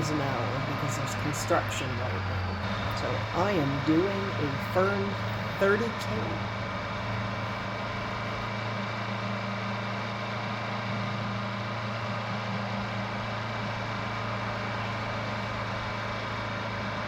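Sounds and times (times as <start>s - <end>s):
motorcycle engine running: 0.0s - 8.5s, 12.8s - 17.0s
wind and road noise: 0.0s - 17.0s.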